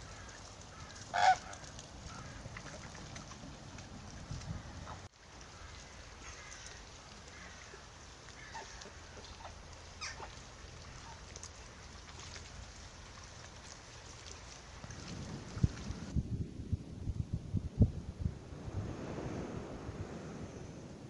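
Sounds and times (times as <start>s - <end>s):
faint bird calls: 5.4s - 11.3s.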